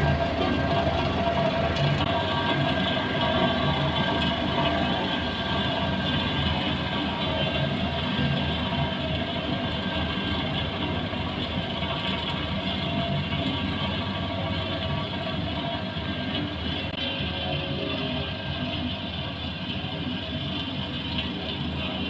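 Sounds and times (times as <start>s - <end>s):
heavy machinery rumbling: 0.0s - 22.0s.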